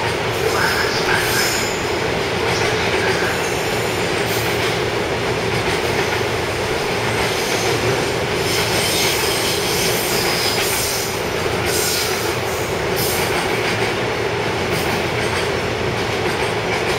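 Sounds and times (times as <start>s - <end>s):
train wheels rumbling on rails: 0.0s - 16.9s
train wheel squeals: 2.5s - 4.5s, 7.3s - 13.3s.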